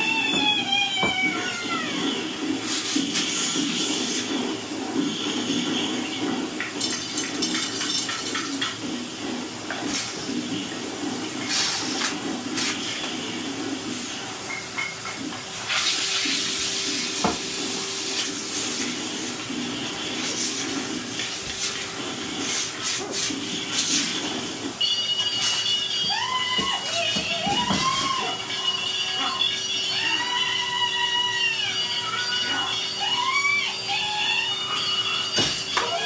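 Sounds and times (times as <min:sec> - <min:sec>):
vacuum cleaner suction rush: 0:15.5 - 0:24.1.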